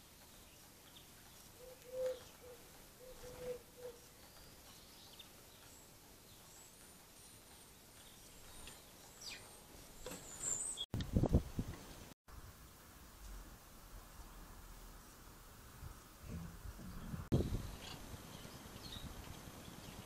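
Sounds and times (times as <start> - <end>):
birds calling: 0.0 - 10.9.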